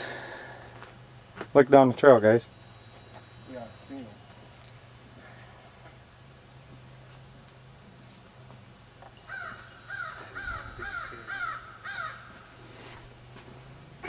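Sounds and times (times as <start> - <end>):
bird calling loudly: 9.2 - 12.6.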